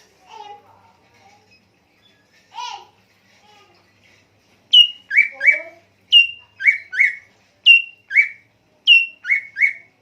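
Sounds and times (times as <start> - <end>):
songbird whistling phrase: 4.7 - 9.9.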